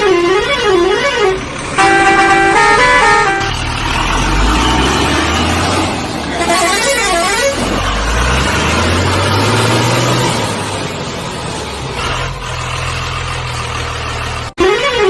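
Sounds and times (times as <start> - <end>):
warbling horn-like tone: 0.0 - 3.6
heavy vehicle engine droning: 0.0 - 15.0.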